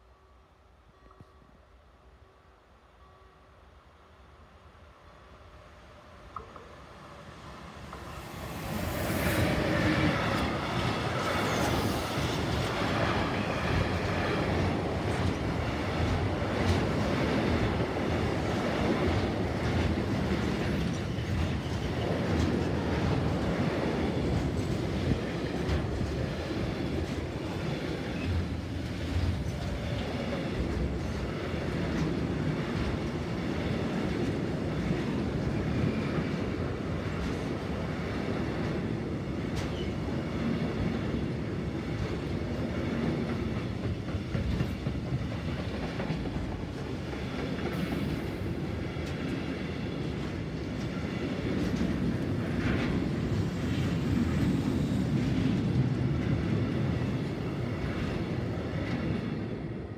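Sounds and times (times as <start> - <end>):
freight wagons rumbling on rails: 8.0 - 59.8.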